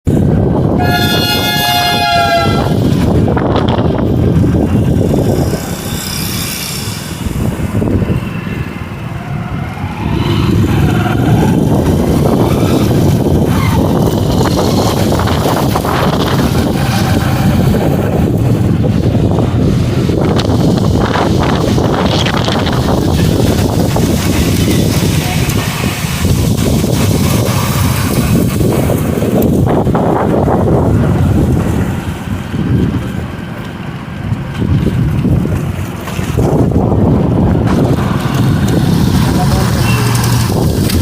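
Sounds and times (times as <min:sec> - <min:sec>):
wind buffeting microphone: 0:00.0 - 0:41.0
horn: 0:00.8 - 0:02.8.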